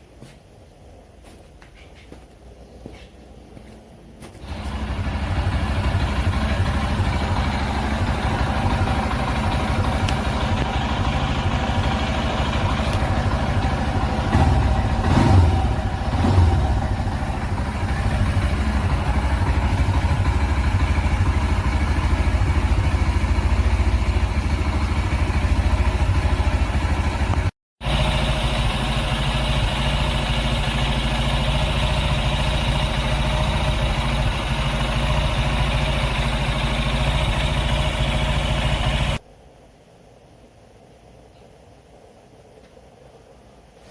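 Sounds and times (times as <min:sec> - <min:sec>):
vehicle engine and road rumble: 0:00.0 - 0:43.9.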